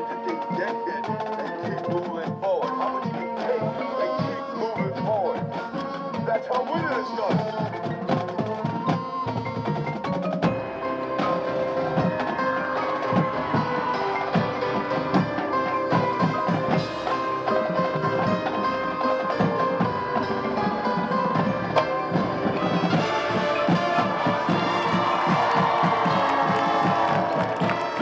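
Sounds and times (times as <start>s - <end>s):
mallet percussion: 0.0s - 28.0s
marching band playing: 0.0s - 28.0s
drums striking: 21.1s - 28.0s.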